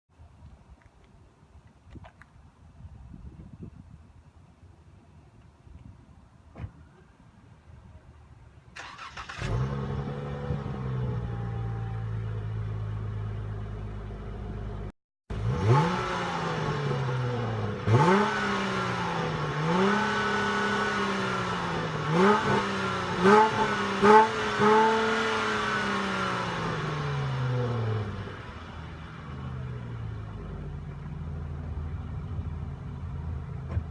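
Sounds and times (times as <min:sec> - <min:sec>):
car engine idling and revving: 0:08.8 - 0:33.9.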